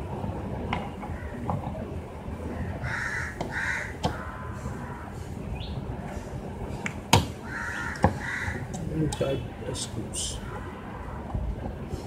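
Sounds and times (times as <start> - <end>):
low background noise: 0.0 - 12.0
harsh bird calls: 7.4 - 9.4.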